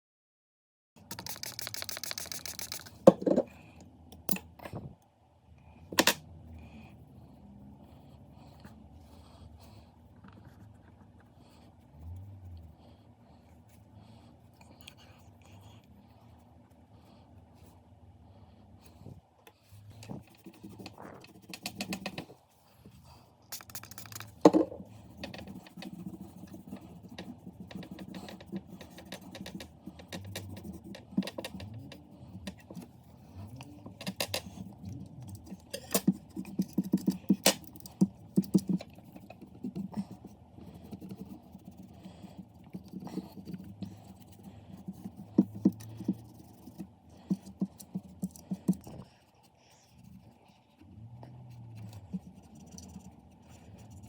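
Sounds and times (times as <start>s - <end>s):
steady low hum: 1.0s - 54.0s.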